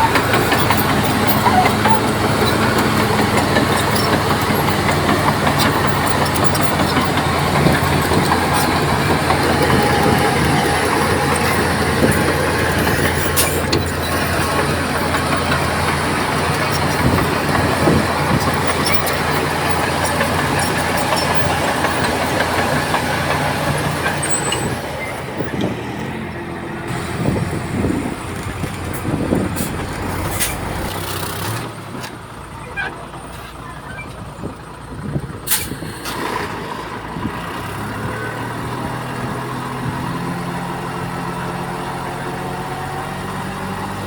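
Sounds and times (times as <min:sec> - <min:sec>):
steel tracks clattering: 0:00.0 - 0:34.4
bulldozer diesel engine running: 0:00.0 - 0:44.0.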